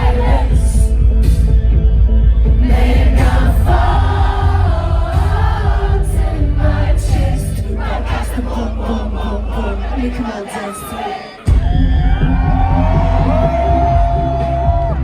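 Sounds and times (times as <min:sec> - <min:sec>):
audience singing along: 0:00.0 - 0:01.4, 0:02.4 - 0:11.7
live concert music with heavy bass: 0:00.0 - 0:15.0.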